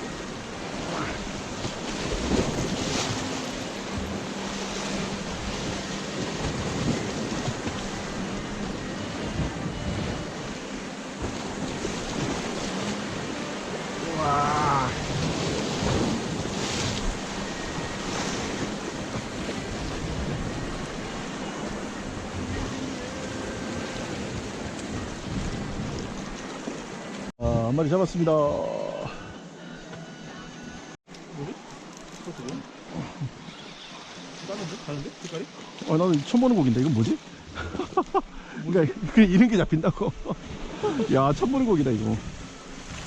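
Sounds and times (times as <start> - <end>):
waves washing against shore: 0.0 - 27.3, 31.2 - 37.9.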